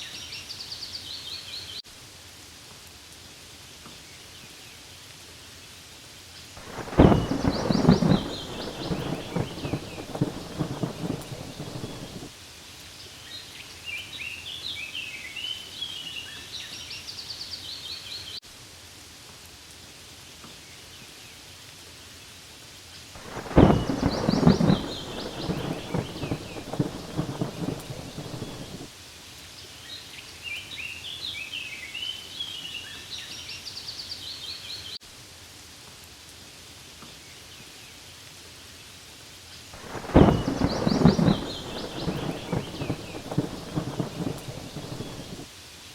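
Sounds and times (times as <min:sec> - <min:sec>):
rain falling on leaves: 0:00.0 - 0:45.9
rumbling thunderclap: 0:06.6 - 0:12.3, 0:23.2 - 0:28.9, 0:39.8 - 0:45.5
high chirping calls: 0:23.3 - 0:28.8, 0:39.8 - 0:45.4.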